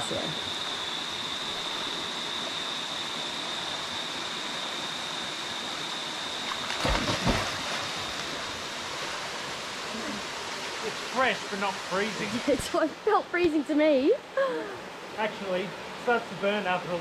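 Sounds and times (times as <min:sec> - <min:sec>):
high-pitched whine: 0:00.0 - 0:12.8
splash or gust bumps: 0:06.7 - 0:07.9
creek cascade rushing: 0:06.8 - 0:13.2.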